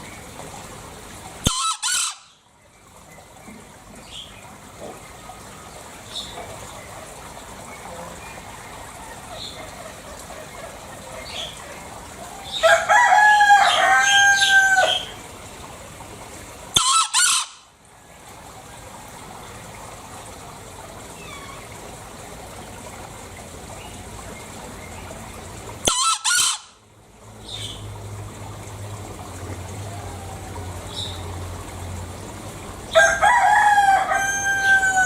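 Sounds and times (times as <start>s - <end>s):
junglefowl double-note crows: 1.4s - 2.3s, 12.6s - 15.2s, 16.7s - 17.7s, 25.8s - 26.8s, 32.9s - 35.0s
junglefowl long call: 1.4s - 2.3s, 16.7s - 17.6s, 25.8s - 26.8s, 33.0s - 35.0s.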